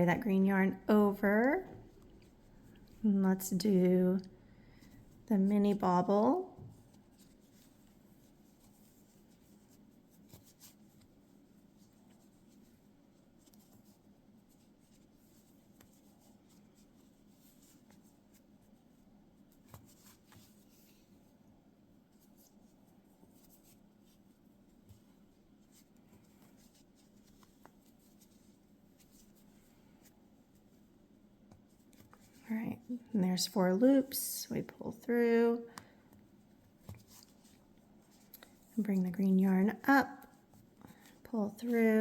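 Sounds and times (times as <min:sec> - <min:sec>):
low room hum: 0:00.0 - 0:42.0
crochet hook scratching yarn: 0:05.3 - 0:18.8, 0:36.8 - 0:42.0.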